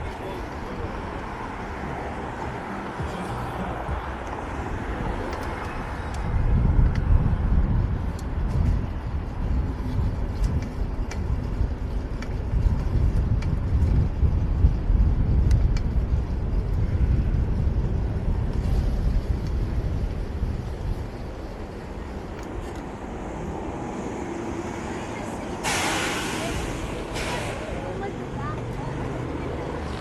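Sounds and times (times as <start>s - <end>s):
vehicles passing: 0.0s - 30.0s
wind on microphone: 0.0s - 30.0s.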